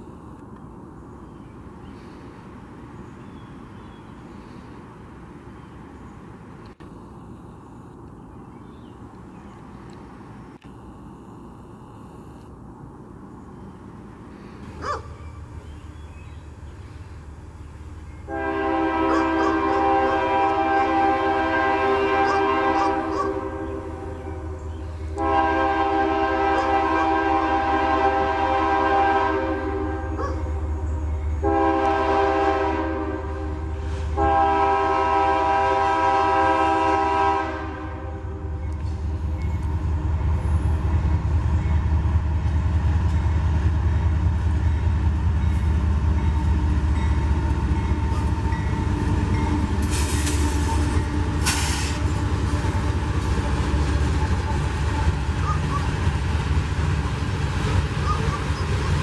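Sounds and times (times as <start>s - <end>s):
train rumbling past: 12.5s - 59.0s
diesel locomotive horn: 18.2s - 39.4s, 44.3s - 56.3s
high hissing: 49.5s - 52.5s.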